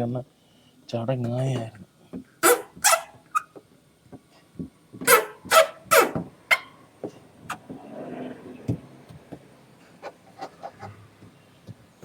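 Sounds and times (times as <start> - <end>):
film rubbing on car paint: 9.9 - 11.1.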